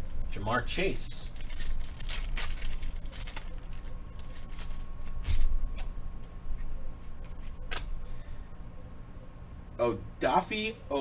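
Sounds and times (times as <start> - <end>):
cards and wrappers rustling: 0.0 - 7.8.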